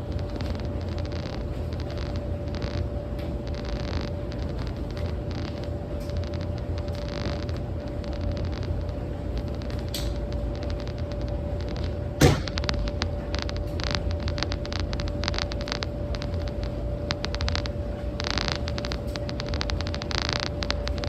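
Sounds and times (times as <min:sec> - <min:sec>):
laundromat machines humming: 0:00.0 - 0:21.0
small clicks and rustling: 0:00.2 - 0:12.0, 0:12.6 - 0:21.0
sharp knock: 0:12.2 - 0:12.7.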